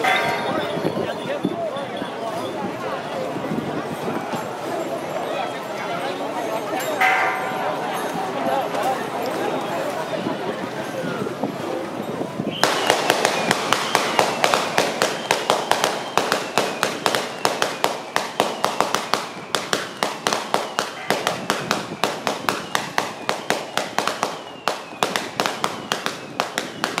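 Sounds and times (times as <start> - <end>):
firecrackers banging: 0.0 - 1.6, 6.3 - 10.0, 12.4 - 27.0.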